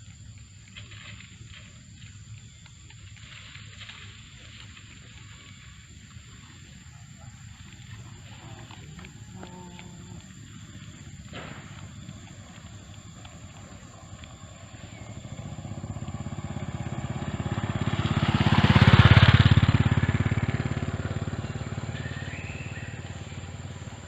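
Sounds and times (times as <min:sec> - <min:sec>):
motorbike engine passing by: 0:03.2 - 0:24.0.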